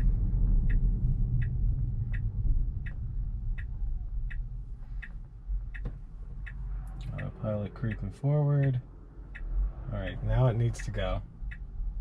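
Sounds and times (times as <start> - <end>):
road noise rumble: 0.0 - 12.0
turn signal ticking: 0.0 - 12.0.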